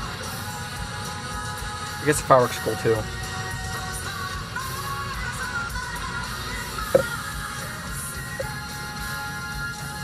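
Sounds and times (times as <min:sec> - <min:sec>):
rock music from a radio: 0:00.0 - 0:10.0
sharp knock: 0:07.0 - 0:07.2.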